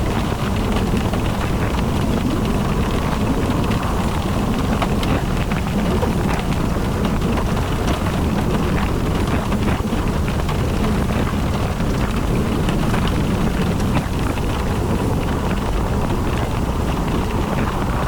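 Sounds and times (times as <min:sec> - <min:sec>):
faint ticks of raindrops: 0:00.0 - 0:18.0
rain falling: 0:00.0 - 0:18.0
road and wind noise: 0:00.0 - 0:18.0.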